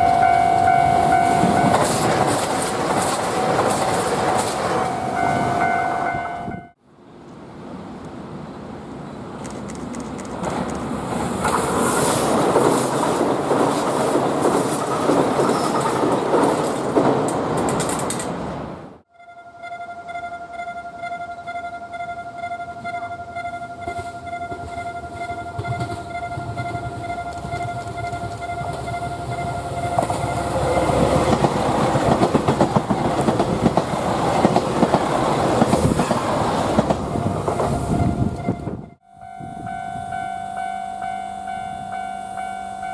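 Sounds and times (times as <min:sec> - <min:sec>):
train rumbling on rails: 0:00.0 - 0:19.1, 0:21.2 - 0:42.9
wheel clacks over rail joints: 0:09.4 - 0:18.5, 0:29.8 - 0:37.8.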